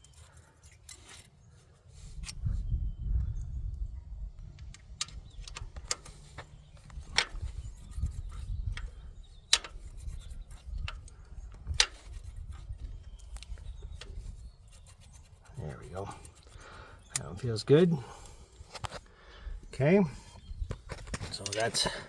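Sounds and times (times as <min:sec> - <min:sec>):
metallic tool clicks and taps: 0:09.5 - 0:12.2.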